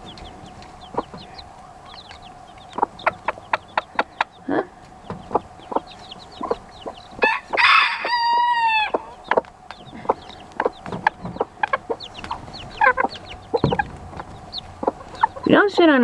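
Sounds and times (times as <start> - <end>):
baby chicks peeping: 0.0 - 16.0
hens clucking: 0.0 - 16.0
rooster crowing: 7.2 - 9.2.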